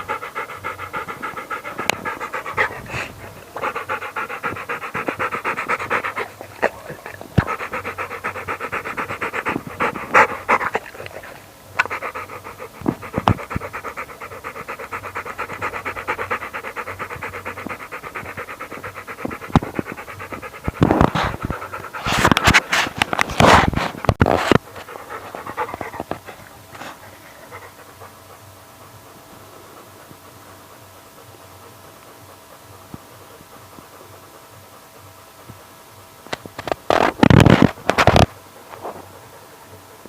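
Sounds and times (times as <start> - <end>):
dog panting: 0.0 - 40.0
rustling: 19.3 - 27.4.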